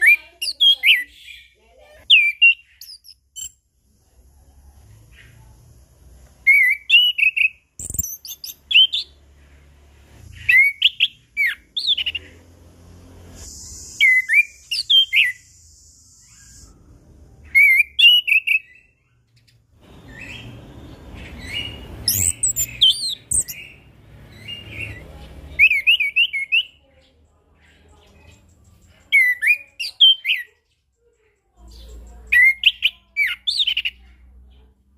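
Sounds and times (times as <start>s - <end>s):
thrush singing whistled notes: 6.4s - 9.2s, 10.2s - 12.3s, 13.2s - 26.8s
steady high hiss: 13.2s - 14.7s.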